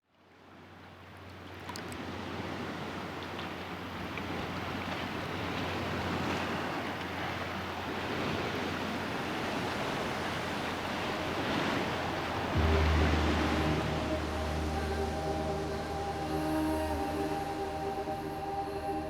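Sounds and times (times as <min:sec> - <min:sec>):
rushing hiss of waves: 0:07.4 - 0:19.0.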